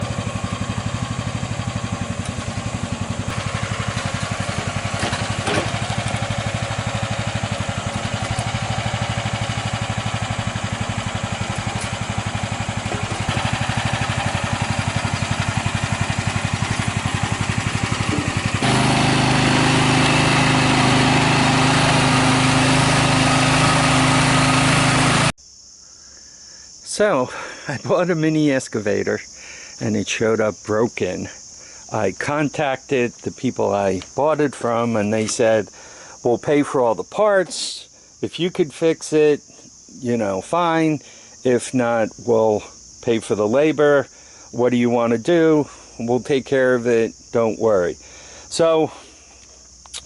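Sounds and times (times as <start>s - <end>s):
mini excavator engine running: 0.0s - 25.3s.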